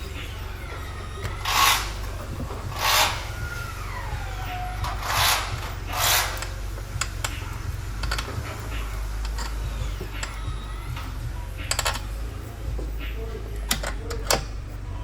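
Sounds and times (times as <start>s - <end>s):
hand tools clicking and tapping: 0.0s - 14.8s.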